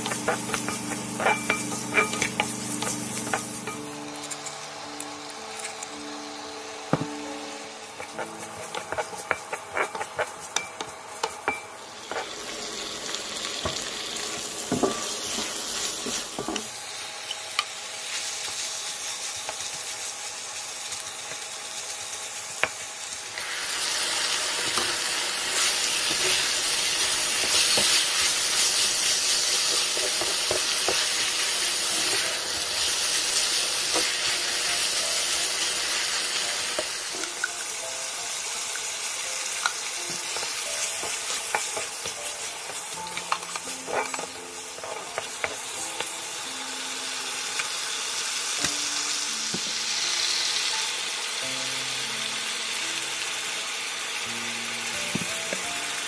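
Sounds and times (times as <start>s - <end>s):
chicken and onion sizzling in oil: 0.0s - 56.0s.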